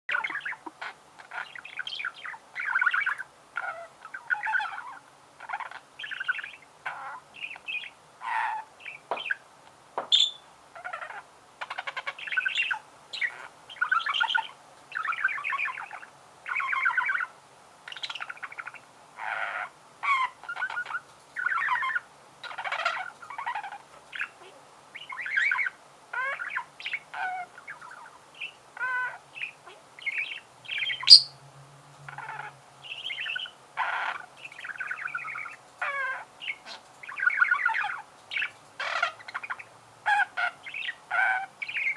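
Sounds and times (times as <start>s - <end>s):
budgerigar warbling: 0.1s - 9.0s, 25.0s - 31.4s, 32.1s - 41.9s.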